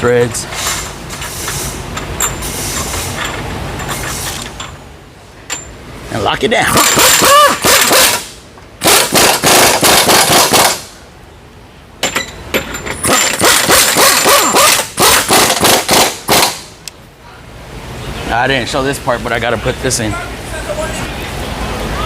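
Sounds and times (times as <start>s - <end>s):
impact wrench rattling: 12.0s - 16.5s.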